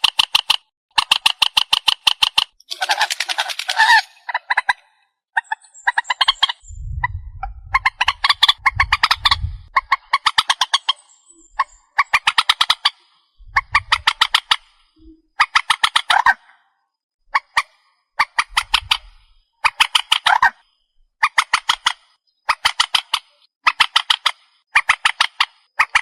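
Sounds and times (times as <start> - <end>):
water bird chattering calls: 2.6 - 6.6, 7.7 - 11.0
low rumble: 6.6 - 9.8, 13.4 - 14.1.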